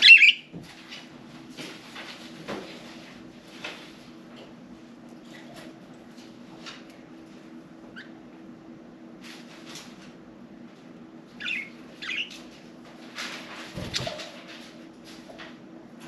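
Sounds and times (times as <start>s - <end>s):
budgerigars chirping: 0.0s - 0.4s, 11.4s - 12.4s
steady low hum: 0.0s - 16.0s.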